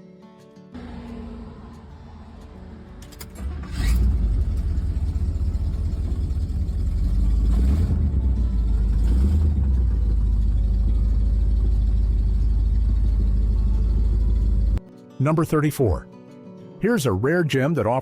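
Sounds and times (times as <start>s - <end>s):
car engine idling rumble: 0.8s - 14.8s
car engine starting: 0.8s - 14.8s.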